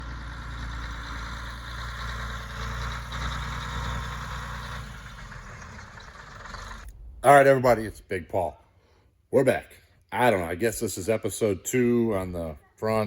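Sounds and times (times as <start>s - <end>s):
engine idling: 0.0s - 7.2s.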